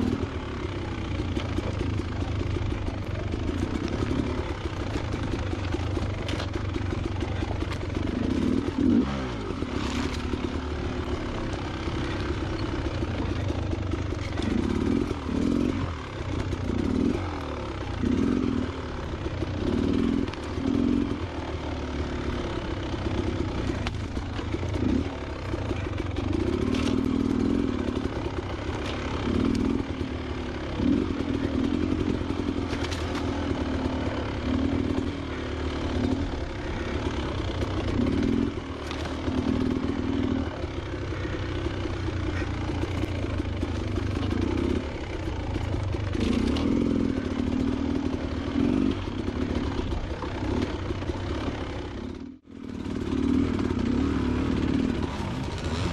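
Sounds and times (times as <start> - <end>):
two-stroke motorcycle engine revving: 0.0 - 55.9.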